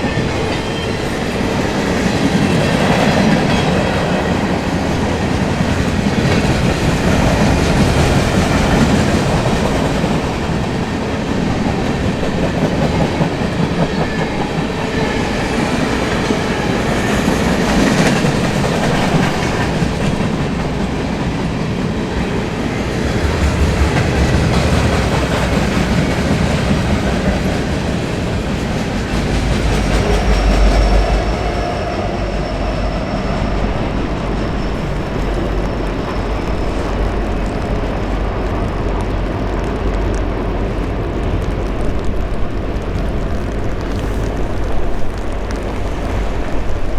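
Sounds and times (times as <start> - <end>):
freight train wheels clattering: 0.0 - 32.6.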